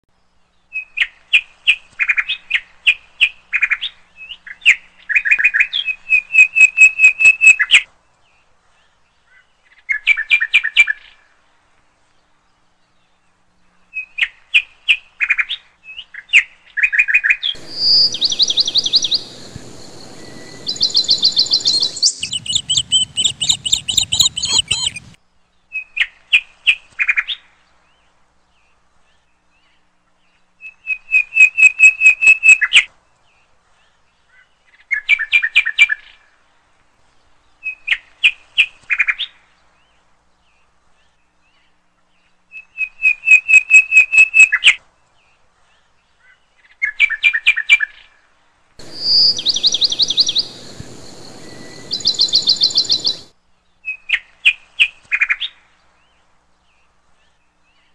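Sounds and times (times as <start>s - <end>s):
songbird high chirps: 17.6s - 26.0s, 48.8s - 54.3s.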